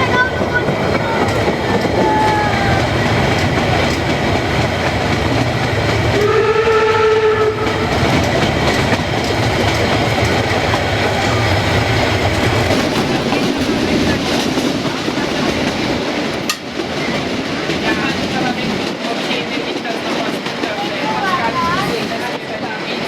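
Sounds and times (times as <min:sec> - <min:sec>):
train wheels clattering on rails: 0:00.0 - 0:23.0
steam whistle: 0:06.2 - 0:07.8.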